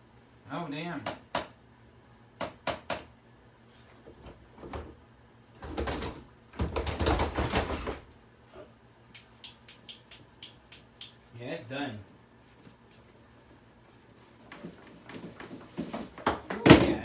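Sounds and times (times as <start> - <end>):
plastic vacuum cleaner rattling: 5.8 - 8.0
quick sharp clicks: 9.1 - 11.2.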